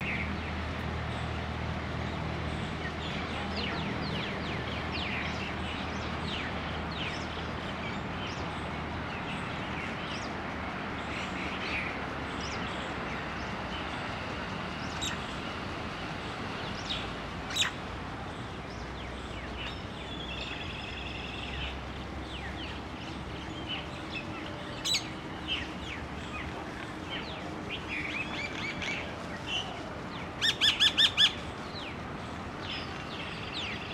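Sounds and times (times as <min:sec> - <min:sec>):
birds chirping: 0:02.4 - 0:33.9
bird trill: 0:30.4 - 0:31.4.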